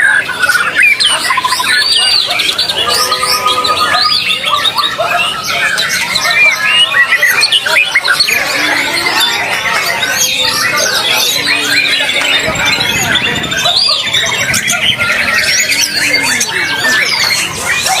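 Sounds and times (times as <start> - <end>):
bird singing varied song: 0.0 - 18.0
fast even bird trill: 0.0 - 18.0.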